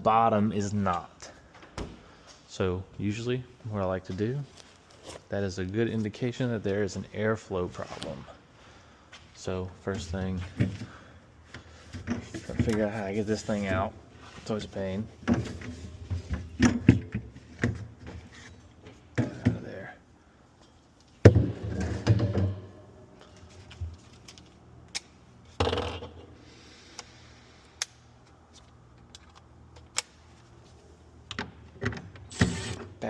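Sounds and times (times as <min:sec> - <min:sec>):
refrigerator parts clunking and rattling: 0:11.8 - 0:13.0, 0:15.2 - 0:19.8, 0:21.2 - 0:22.9.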